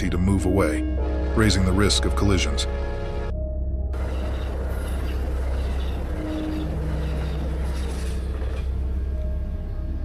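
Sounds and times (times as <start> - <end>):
moving train rumble: 4.0 - 10.0.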